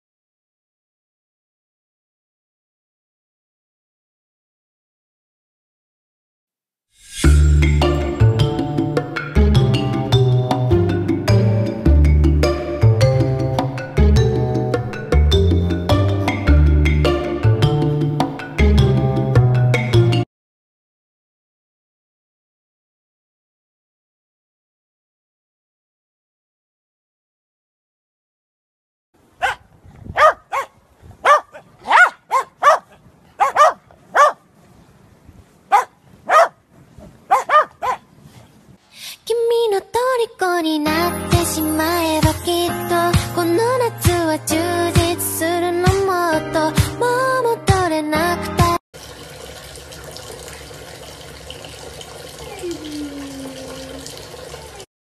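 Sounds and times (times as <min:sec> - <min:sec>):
dogs barking high-pitched: 0:29.4 - 0:34.4, 0:35.7 - 0:36.6, 0:37.3 - 0:38.1, 0:52.3 - 0:54.9
tap water splashing: 0:49.0 - 0:54.8
puppy whine: 0:52.3 - 0:54.9.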